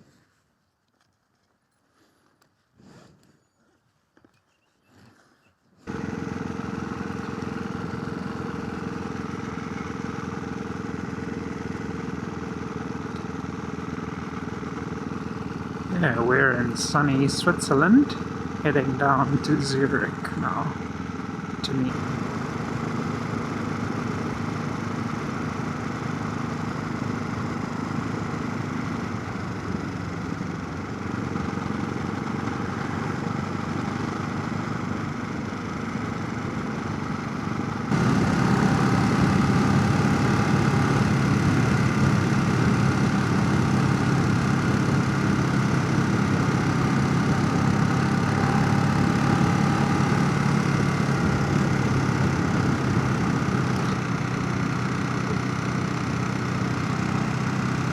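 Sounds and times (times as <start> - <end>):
motorcycle engine cruising: 5.8 - 57.9
wind and road noise: 17.8 - 57.9.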